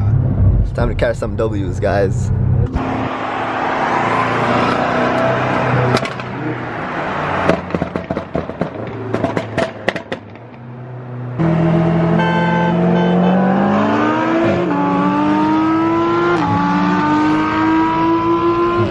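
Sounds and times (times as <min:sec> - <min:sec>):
car engine accelerating: 0:02.1 - 0:18.9
exhaust pops and crackles: 0:05.9 - 0:06.4, 0:07.4 - 0:10.6.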